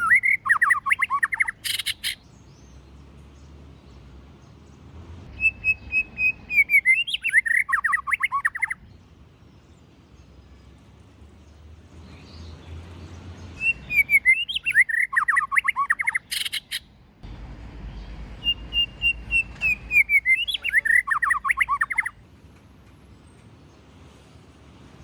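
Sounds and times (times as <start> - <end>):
harsh bird call: 0.0 - 2.2, 5.3 - 8.8, 13.6 - 16.9, 18.4 - 22.2
bird singing: 0.0 - 17.1, 17.9 - 22.3.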